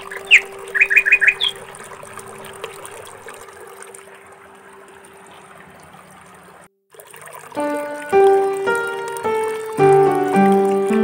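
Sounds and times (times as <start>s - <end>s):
small bird chirping: 0.0s - 1.6s.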